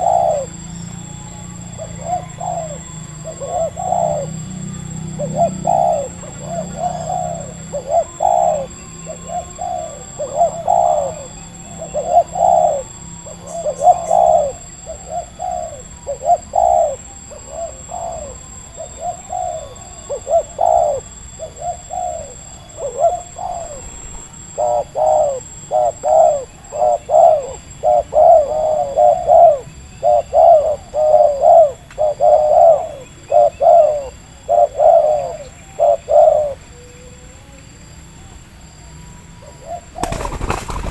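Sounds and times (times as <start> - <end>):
doves cooing: 0.0 - 37.5, 38.1 - 40.9.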